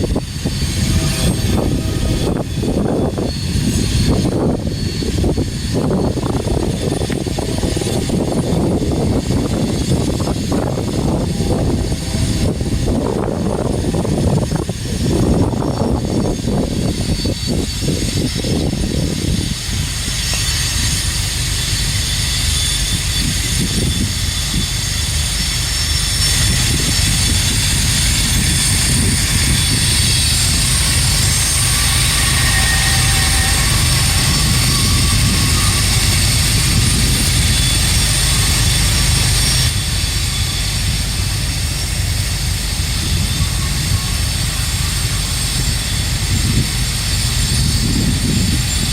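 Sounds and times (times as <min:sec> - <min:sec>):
train wheels rumbling on rail: 0:00.0 - 0:48.9
heavy uneven throb: 0:08.8 - 0:15.3.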